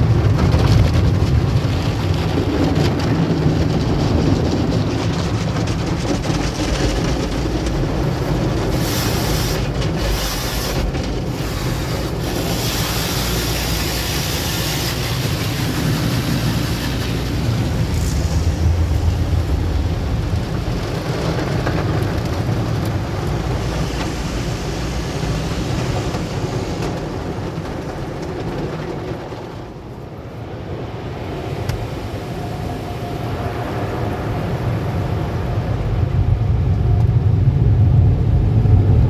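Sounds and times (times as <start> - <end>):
car wash machinery rumble: 0.0 - 39.0
water spraying against car: 1.0 - 30.1.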